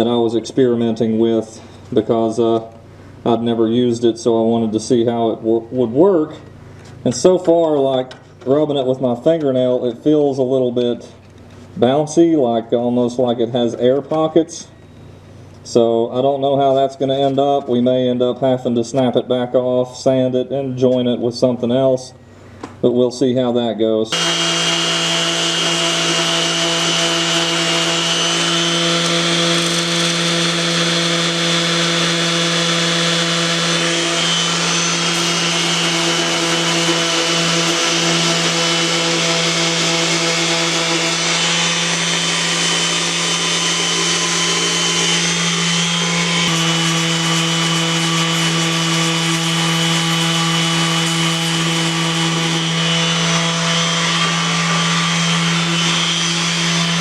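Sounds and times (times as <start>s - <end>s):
power sander sanding plastic: 24.1s - 57.0s.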